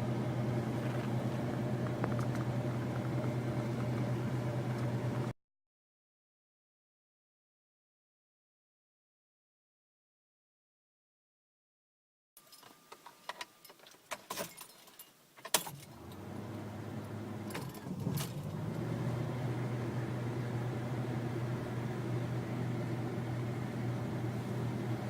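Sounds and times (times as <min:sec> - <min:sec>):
car engine starting and idling: 0:00.0 - 0:05.3, 0:15.6 - 0:25.0
car keys jangling: 0:12.5 - 0:16.2.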